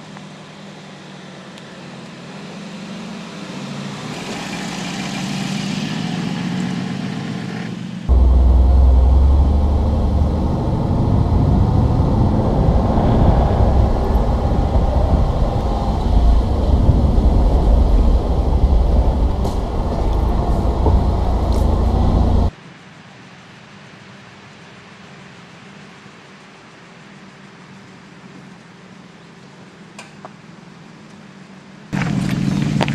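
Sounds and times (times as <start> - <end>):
engine deep rumble: 8.1 - 22.5, 32.0 - 32.9.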